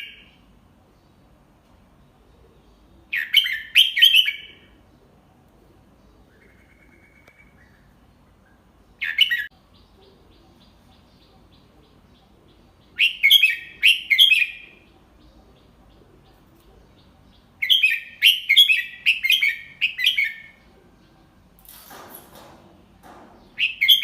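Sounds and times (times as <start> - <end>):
bulbul singing: 5.8 - 21.6, 23.0 - 24.0.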